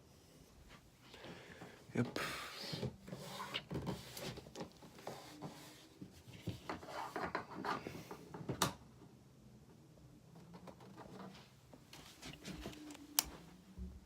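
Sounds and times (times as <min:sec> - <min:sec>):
objects being handled: 0:10.4 - 0:13.5.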